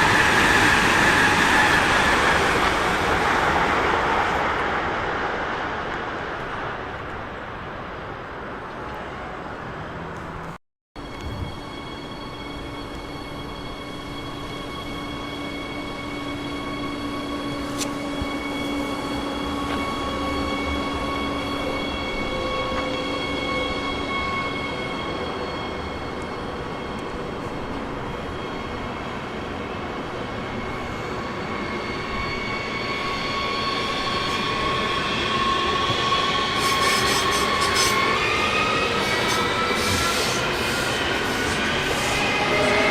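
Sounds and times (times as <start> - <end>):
train wheels rumbling: 9.8 - 42.9
electric train drive whine: 11.0 - 42.9.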